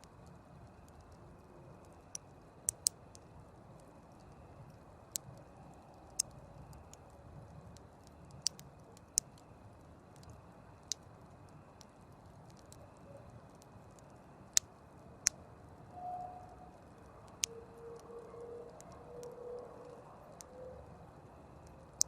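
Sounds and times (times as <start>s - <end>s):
campfire crackling and popping: 0.2s - 15.7s.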